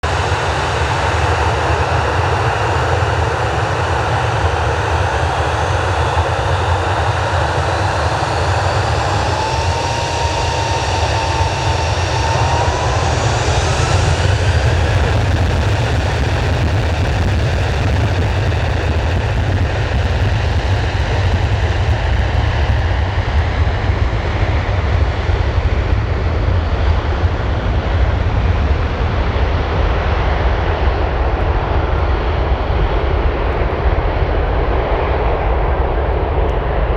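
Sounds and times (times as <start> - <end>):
jet engines roaring: 0.0 - 36.9
rising thin whine: 8.1 - 23.7.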